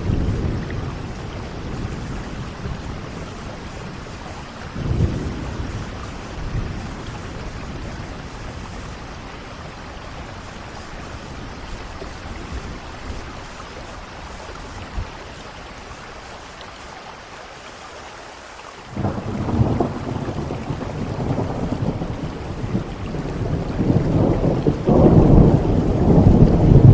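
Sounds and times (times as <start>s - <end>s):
low thunder rumbling: 0.0s - 16.2s, 18.9s - 26.9s
steady rain falling: 0.0s - 26.9s
loud thunder crack: 19.0s - 26.9s.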